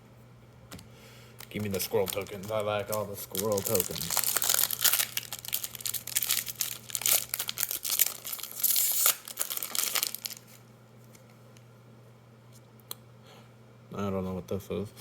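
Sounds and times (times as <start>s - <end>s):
foil wrapper crinkling: 1.4s - 11.3s.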